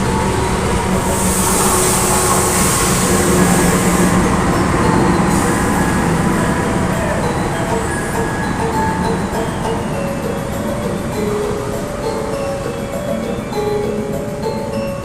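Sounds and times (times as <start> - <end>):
loud high hiss: 0.0 - 15.0
train rumbling with low hum: 0.0 - 15.0.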